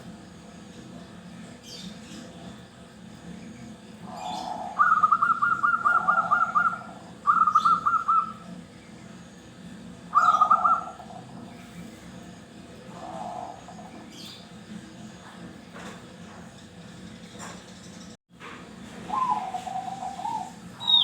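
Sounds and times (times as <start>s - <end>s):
dove cooing: 4.0s - 8.5s, 10.1s - 11.3s, 12.9s - 13.9s, 19.0s - 21.0s.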